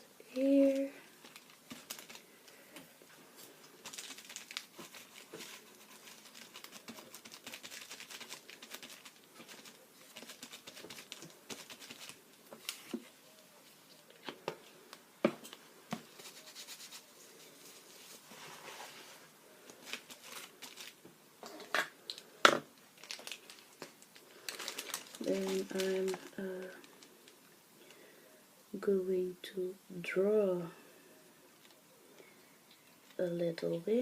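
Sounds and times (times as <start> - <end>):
paper rustling and crinkling: 0.6 - 2.4, 3.2 - 14.4, 15.4 - 21.0, 23.0 - 27.1.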